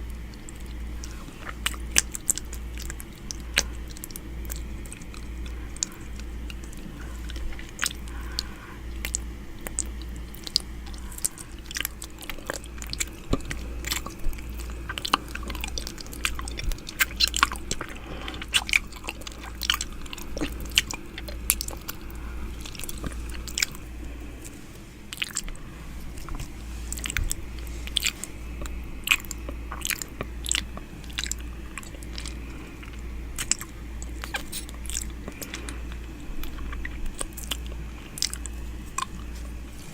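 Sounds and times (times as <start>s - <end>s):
steady low hum: 0.0s - 39.9s
wet mouth clicks and smacks: 26.2s - 35.7s.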